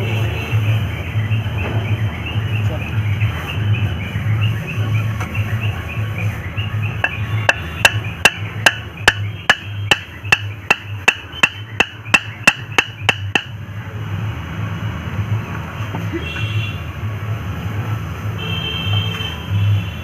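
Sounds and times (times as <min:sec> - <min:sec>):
hammer blows ringing: 0:07.0 - 0:13.6.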